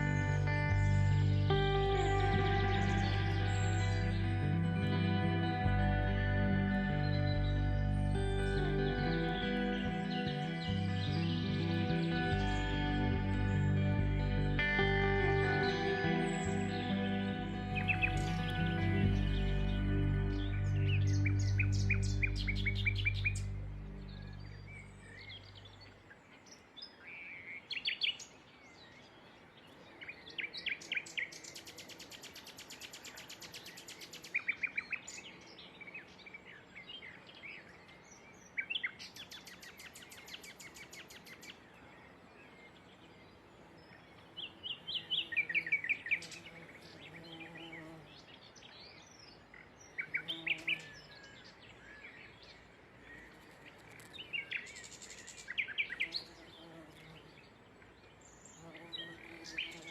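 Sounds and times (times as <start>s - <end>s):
soft background music: 0.0s - 25.0s
songbirds chirping: 0.0s - 59.9s.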